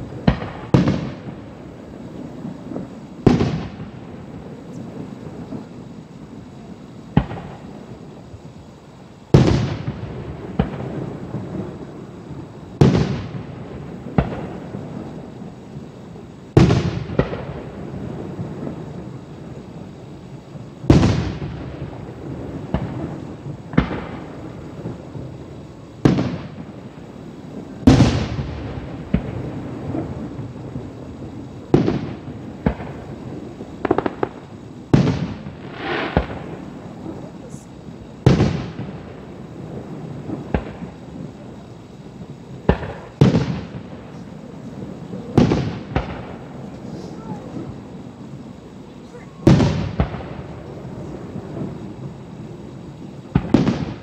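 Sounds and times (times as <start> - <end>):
firework shells booming: 0.0 - 54.0.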